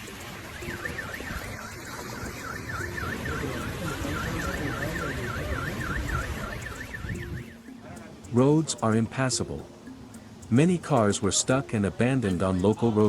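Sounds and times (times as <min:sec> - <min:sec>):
car alarm sweeping tone: 0:00.0 - 0:07.7
steady wash of noise: 0:00.0 - 0:13.0.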